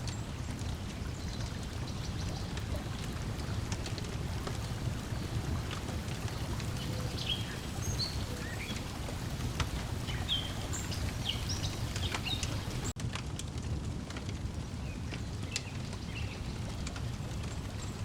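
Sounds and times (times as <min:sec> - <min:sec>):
lake water lapping: 0:00.0 - 0:13.0
small birds chirping: 0:00.0 - 0:13.0, 0:14.8 - 0:16.9
wood fire crackling and popping: 0:00.0 - 0:18.0.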